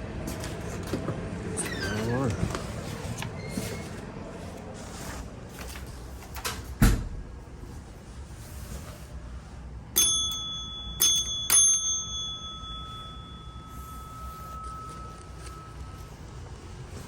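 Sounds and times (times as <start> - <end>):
small bell ringing: 10.0 - 16.4.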